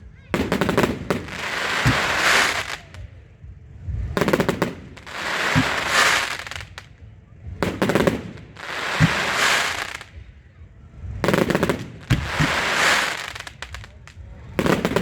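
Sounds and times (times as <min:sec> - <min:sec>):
fireworks cracking: 0:00.1 - 0:03.2, 0:04.0 - 0:10.4, 0:11.2 - 0:15.0
firework crackling hiss: 0:00.4 - 0:03.1, 0:04.2 - 0:07.0, 0:07.6 - 0:10.3, 0:11.2 - 0:15.0
low firework thump: 0:01.8 - 0:02.2, 0:05.5 - 0:06.9, 0:09.0 - 0:09.4.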